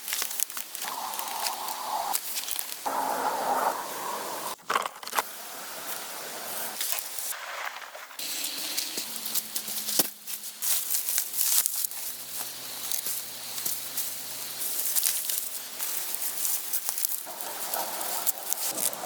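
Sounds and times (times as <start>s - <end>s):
crackling and rustling noise: 0.0s - 19.0s.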